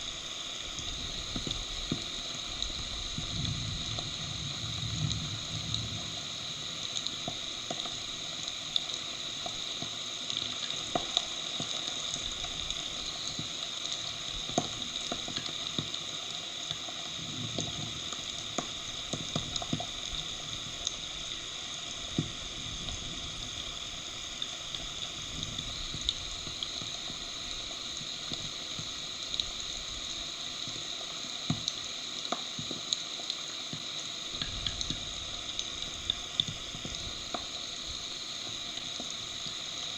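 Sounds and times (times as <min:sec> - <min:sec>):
raindrops ticking close by: 0:00.0 - 0:39.9
heavy rain falling: 0:01.0 - 0:09.7.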